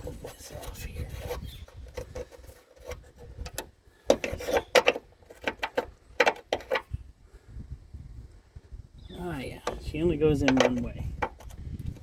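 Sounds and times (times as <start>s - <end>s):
metal parts clicking and scraping: 0.6s - 6.9s.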